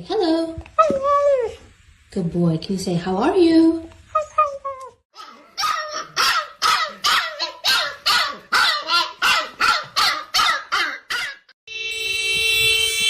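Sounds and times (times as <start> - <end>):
dog barking: 5.2 - 11.5
loud steady horn-like tone: 11.7 - 13.0.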